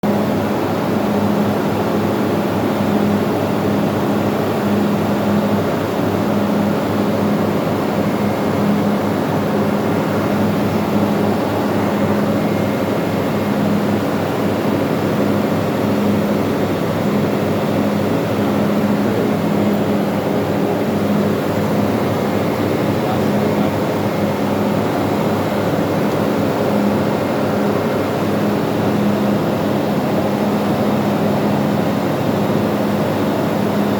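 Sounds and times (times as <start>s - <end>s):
engine-room machinery drone: 0.0s - 33.9s.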